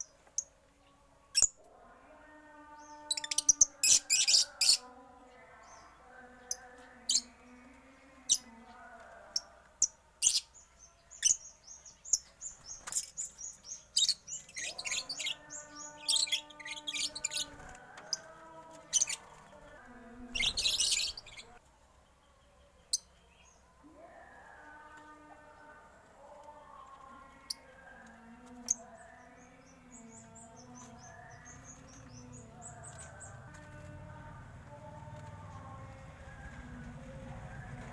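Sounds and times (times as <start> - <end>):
cage birds chirping: 0.0 - 37.9.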